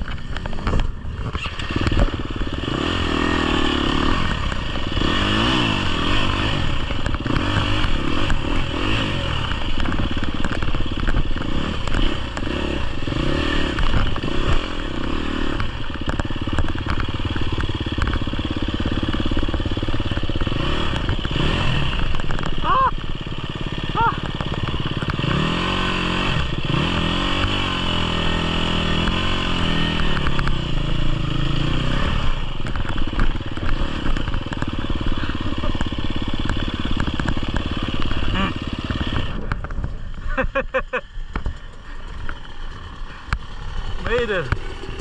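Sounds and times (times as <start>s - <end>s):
dirt bike engine revving: 0.0s - 45.0s
bike clattering over rough ground: 9.4s - 25.4s, 32.4s - 45.0s.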